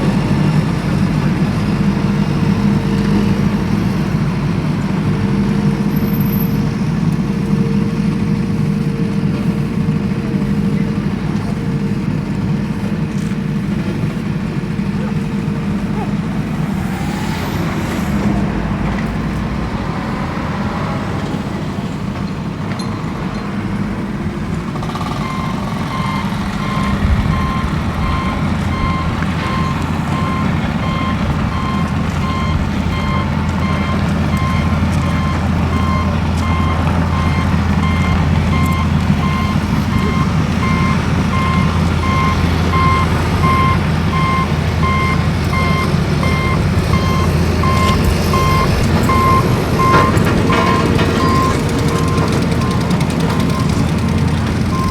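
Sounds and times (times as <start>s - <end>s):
vehicle engine rumbling: 0.0s - 54.9s
reversing alarm beeping: 24.8s - 54.9s.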